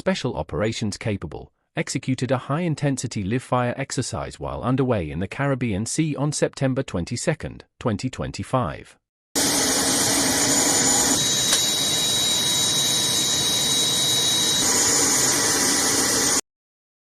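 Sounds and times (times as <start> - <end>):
helicopter turbine engines: 9.4 - 16.4
thin high whine: 9.4 - 16.4
single click: 11.5 - 11.7.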